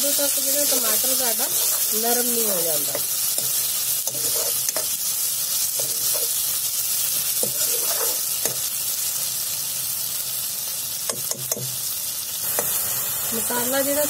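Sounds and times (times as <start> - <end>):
food sizzling in hot oil: 0.0 - 14.0
ladle scraping and tapping pan: 2.9 - 5.0, 7.4 - 8.6.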